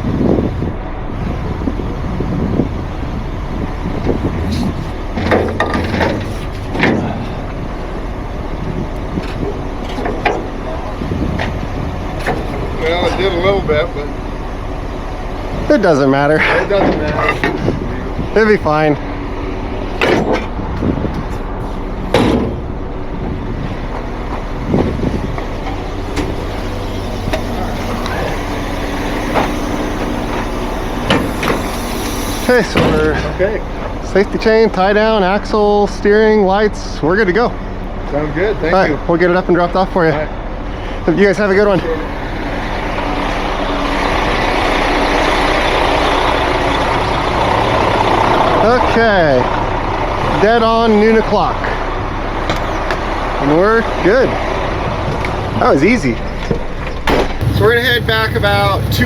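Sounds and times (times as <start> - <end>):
diesel truck engine idling: 0.0 - 59.0
metallic clanks and knocks: 4.6 - 7.4, 19.9 - 22.7.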